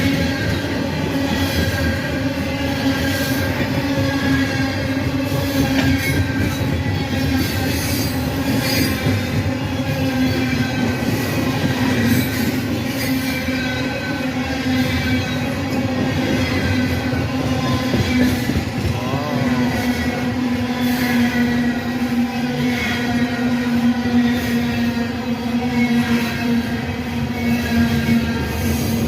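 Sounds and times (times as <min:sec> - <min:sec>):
wheel flange squeal: 0:00.0 - 0:18.6, 0:19.6 - 0:29.0
train wheels rumbling on rails: 0:00.0 - 0:29.0.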